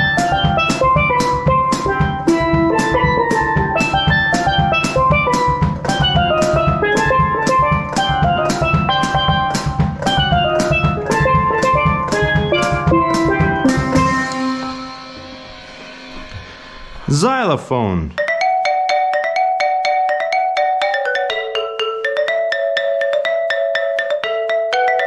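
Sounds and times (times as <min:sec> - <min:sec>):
steel pan melody: 0:00.0 - 0:17.3, 0:18.2 - 0:25.0
drum kit beat: 0:00.0 - 0:18.7.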